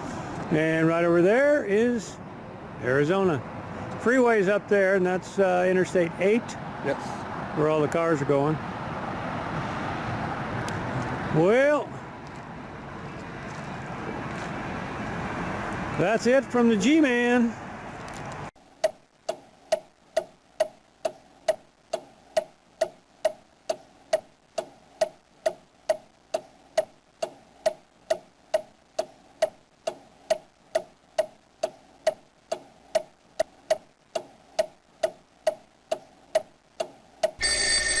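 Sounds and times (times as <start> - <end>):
steady clock ticking: 18.8 - 37.4.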